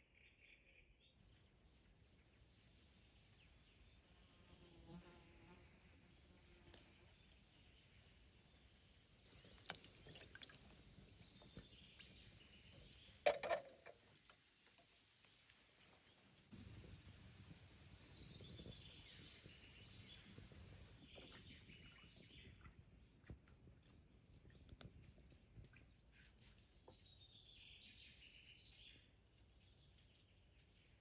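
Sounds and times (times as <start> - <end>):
birds chirping: 16.6 - 22.7.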